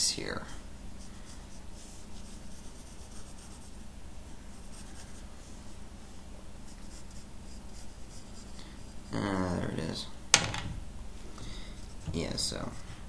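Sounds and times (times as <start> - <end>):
pencil scratching on paper: 1.0 - 3.8, 4.6 - 5.6, 6.7 - 9.1.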